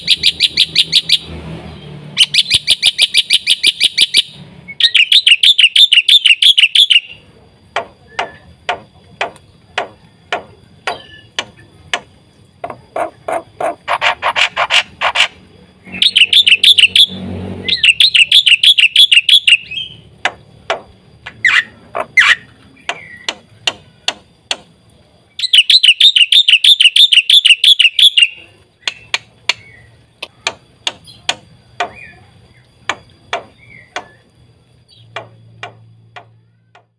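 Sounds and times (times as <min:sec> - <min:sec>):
bird warbling trills: 0:02.2 - 0:07.2, 0:10.0 - 0:11.8, 0:12.6 - 0:24.1, 0:25.4 - 0:36.7
bird sharp clicking notes: 0:20.2 - 0:24.7, 0:25.4 - 0:34.3.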